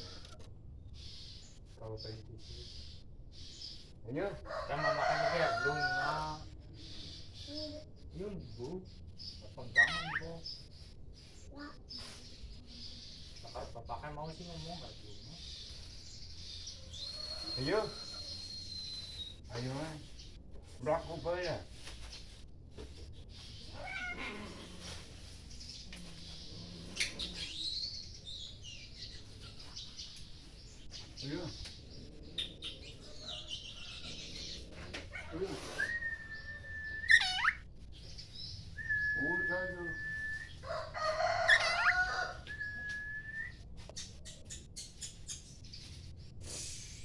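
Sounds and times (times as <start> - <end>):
bird singing whistled notes: 17.0 - 19.4, 35.8 - 37.6, 38.4 - 40.6, 42.4 - 43.6
cat meowing: 23.8 - 24.6.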